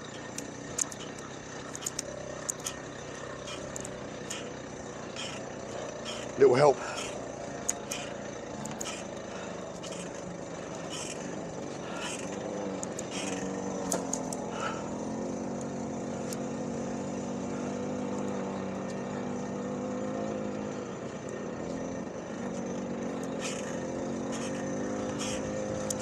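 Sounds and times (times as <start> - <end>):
clicks and scrapes handling bikes: 0.0 - 14.8, 22.4 - 26.0
moped engine idling: 0.0 - 26.0.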